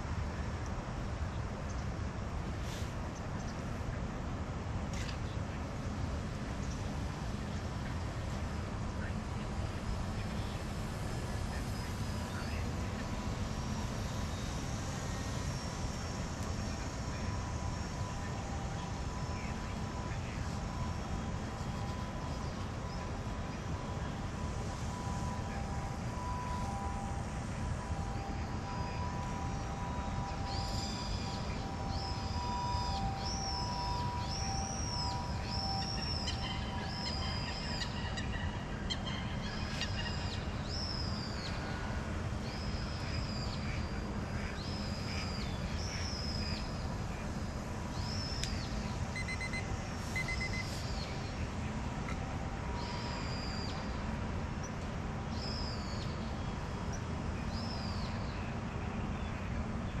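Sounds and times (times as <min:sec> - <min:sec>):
steady low rumble: 0:00.0 - 0:55.3
faint electric motor whine: 0:00.0 - 1:00.0
bird calling high notes: 0:48.0 - 0:51.3.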